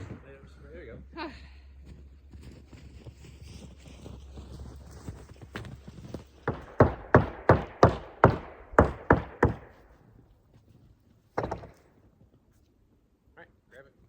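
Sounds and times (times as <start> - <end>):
sharp knocks: 6.5 - 9.9, 11.4 - 11.9.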